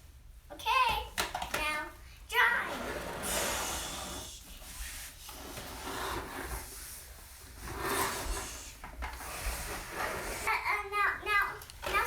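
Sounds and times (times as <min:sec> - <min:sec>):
toy boat scraping along surface: 0:02.7 - 0:04.4, 0:05.4 - 0:06.8, 0:07.6 - 0:10.5.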